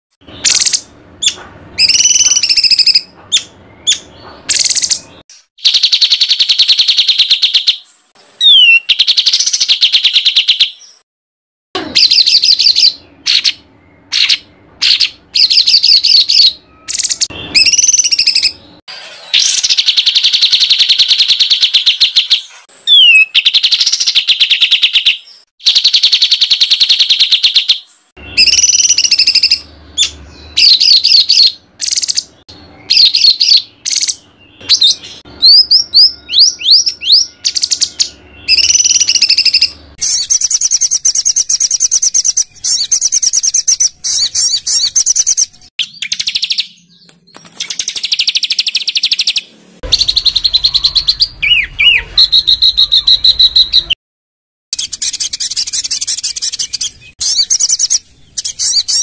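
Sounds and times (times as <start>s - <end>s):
songbird singing rapid notes: 0.2s - 11.0s, 19.5s - 54.0s.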